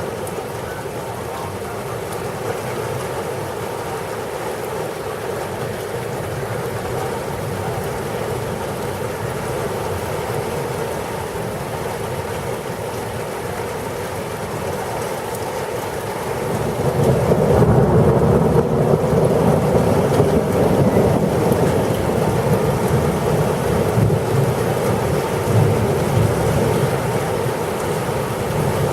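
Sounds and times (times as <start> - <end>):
heavy rain falling: 0.0 - 28.9
low rumble of thunder: 16.5 - 28.9.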